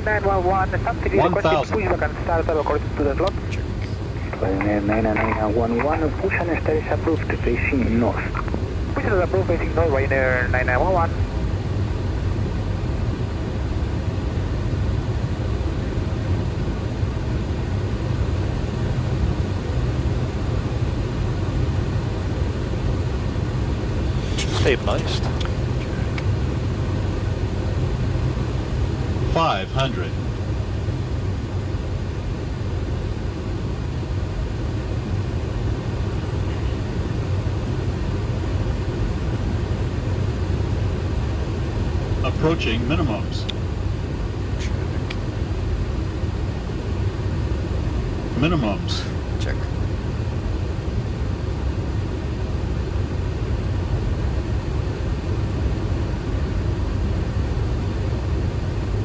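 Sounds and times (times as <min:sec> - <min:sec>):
cockpit low rumble: 0:00.0 - 0:59.0
rushing air hiss: 0:24.1 - 0:24.7.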